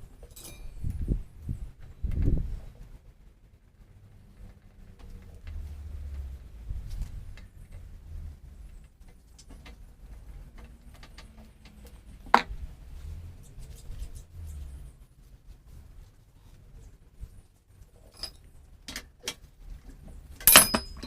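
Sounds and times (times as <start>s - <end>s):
clicks and knocks of hand tools: 20.4s - 21.0s.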